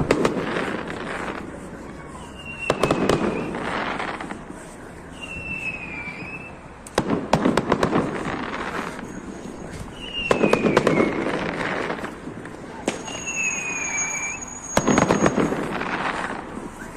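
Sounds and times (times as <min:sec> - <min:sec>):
crackling hiss: 0:00.0 - 0:16.9
firework bangs: 0:00.0 - 0:16.9
firework whistle: 0:02.2 - 0:03.7, 0:05.1 - 0:06.7, 0:09.6 - 0:12.1, 0:12.9 - 0:16.9.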